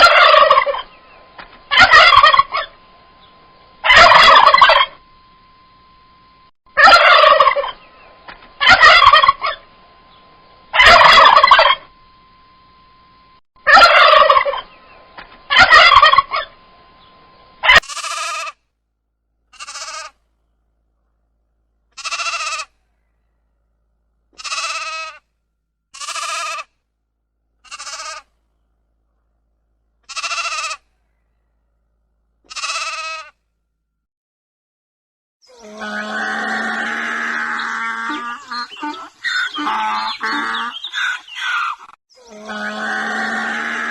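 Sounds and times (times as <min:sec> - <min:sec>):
turkey gobbling: 0:00.0 - 0:01.0, 0:01.7 - 0:02.8, 0:03.8 - 0:05.0, 0:06.8 - 0:07.8, 0:08.6 - 0:09.6, 0:10.8 - 0:11.9, 0:13.6 - 0:14.8, 0:15.5 - 0:16.6, 0:17.6 - 0:18.5, 0:35.8 - 0:42.7
sheep bleating: 0:19.6 - 0:20.1, 0:22.0 - 0:22.7, 0:24.4 - 0:25.2, 0:26.0 - 0:26.6, 0:27.6 - 0:28.2, 0:30.1 - 0:30.8, 0:32.5 - 0:33.3, 0:35.6 - 0:40.9.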